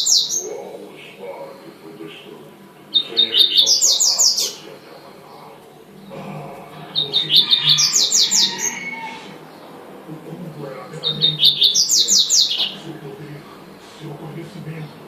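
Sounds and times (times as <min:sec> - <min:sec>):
bird song of sharp high notes: 0:00.0 - 0:15.0.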